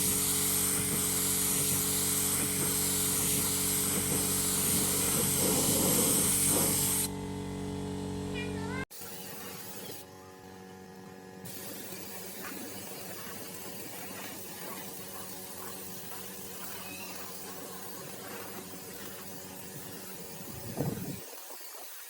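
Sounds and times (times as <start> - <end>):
spray hiss: 0.0 - 7.1, 11.4 - 22.0
low mechanical hum: 0.0 - 21.2
faint high chirps: 16.6 - 17.9.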